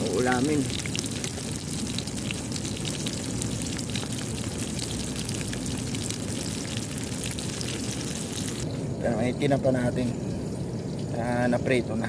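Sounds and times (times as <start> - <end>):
eggplant sizzling in oil: 0.0 - 8.7.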